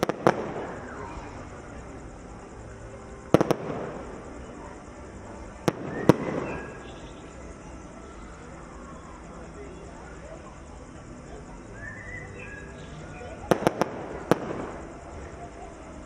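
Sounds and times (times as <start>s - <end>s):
fireworks bangs: 0.0s - 2.0s, 2.7s - 7.5s, 12.7s - 15.4s.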